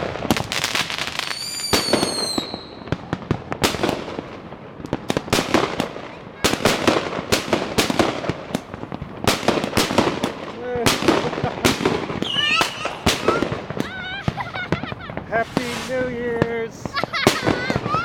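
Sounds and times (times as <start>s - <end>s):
fireworks popping and banging: 0.0s - 18.0s
firework whistle: 1.2s - 2.9s, 11.8s - 14.4s.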